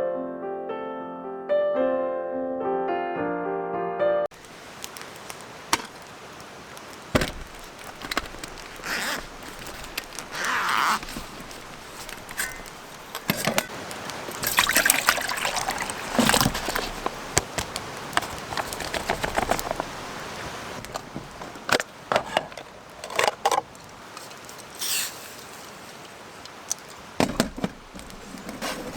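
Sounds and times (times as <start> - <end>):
creek trickling: 4.3 - 28.9
clicks and knocks of handling: 4.4 - 6.1, 6.8 - 24.7, 26.7 - 28.9.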